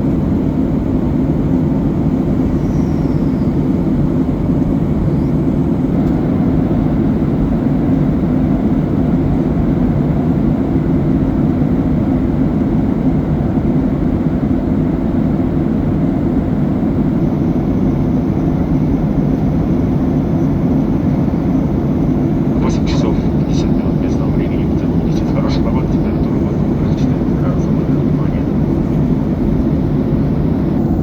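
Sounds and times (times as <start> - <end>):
airplane cabin roar: 0.0 - 31.0.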